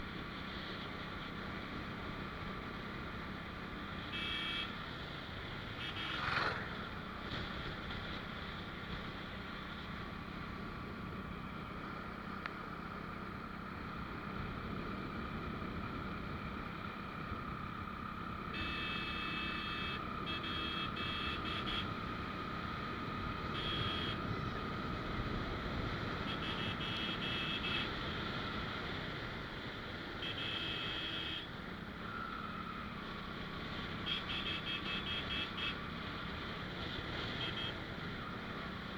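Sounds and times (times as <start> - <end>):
motorcycle road and engine noise: 0.0 - 38.9.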